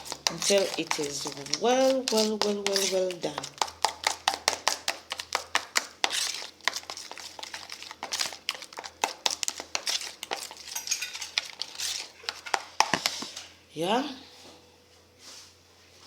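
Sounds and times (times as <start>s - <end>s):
raw chicken squishing in marinade: 0.0s - 12.4s.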